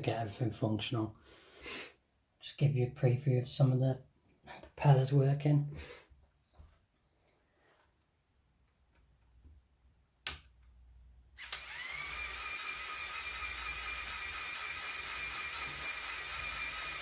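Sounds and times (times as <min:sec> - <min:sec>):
sharp click: 0:10.2 - 0:10.5, 0:11.4 - 0:11.7
toy electric motor whine with gears: 0:11.4 - 0:17.0.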